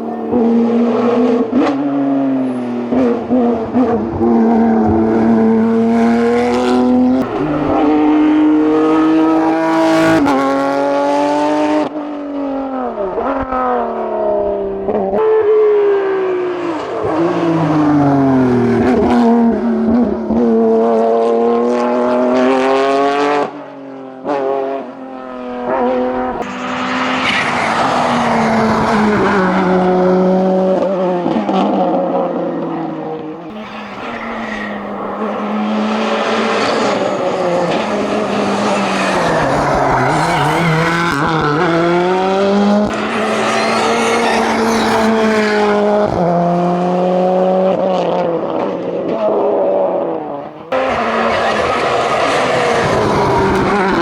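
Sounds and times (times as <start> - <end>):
race car engine revving: 0.0 - 12.0, 24.2 - 54.0.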